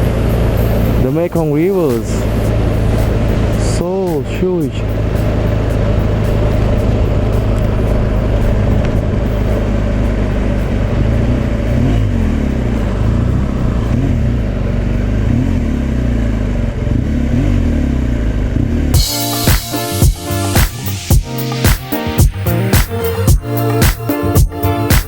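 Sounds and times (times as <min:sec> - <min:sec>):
wind and road noise: 0:00.0 - 0:19.0
motorcycle engine running: 0:00.0 - 0:25.0
music with a beat: 0:00.3 - 0:13.2, 0:19.0 - 0:25.0.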